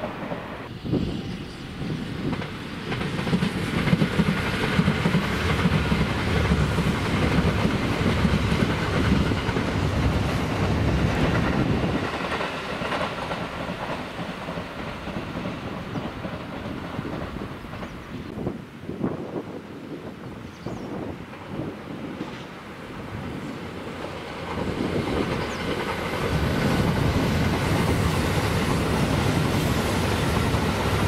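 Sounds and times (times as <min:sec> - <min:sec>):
electric train passing: 0:00.0 - 0:31.0.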